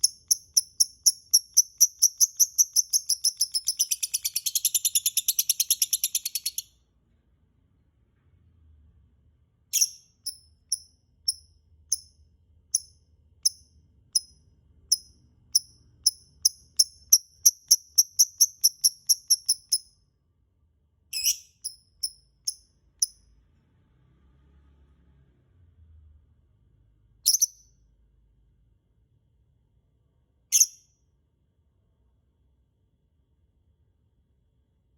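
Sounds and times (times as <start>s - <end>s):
short high bird chirps: 0.0s - 6.8s, 9.7s - 12.2s, 21.1s - 23.2s, 27.2s - 27.8s, 30.5s - 30.9s.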